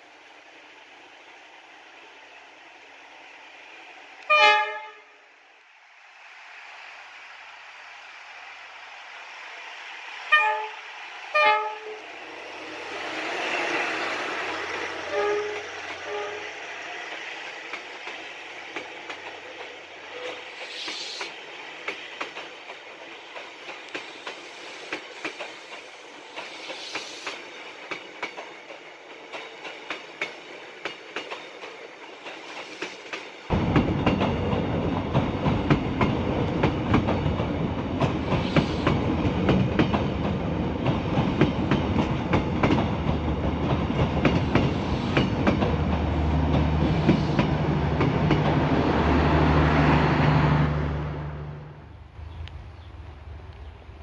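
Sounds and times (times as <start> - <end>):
train horn blasts: 4.2 - 5.3, 10.3 - 12.1, 15.0 - 16.6
train wheels clacking on rails: 10.3 - 50.4.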